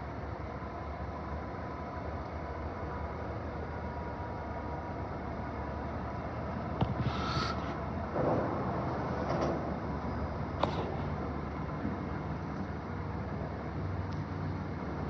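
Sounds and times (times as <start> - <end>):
train rumbling: 6.8 - 15.0.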